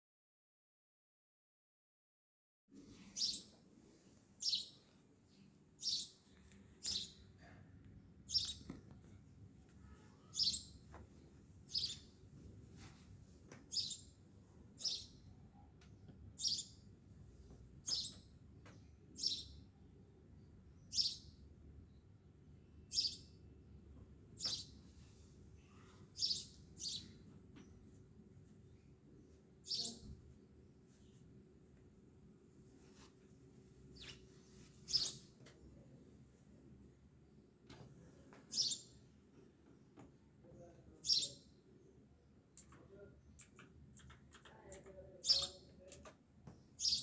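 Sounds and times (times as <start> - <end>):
faint low background noise: 2.7 - 47.0
bird chirping: 3.1 - 3.6, 4.4 - 7.3, 8.3 - 8.8, 9.8 - 10.8, 11.7 - 12.2, 13.7 - 14.2, 14.8 - 15.4, 16.4 - 16.9, 17.8 - 19.7, 20.8 - 21.4, 22.8 - 23.4, 24.4 - 24.8, 25.8 - 27.8, 29.6 - 30.1, 34.8 - 35.3, 38.5 - 39.0, 41.0 - 41.5, 43.4 - 45.8, 46.7 - 47.0.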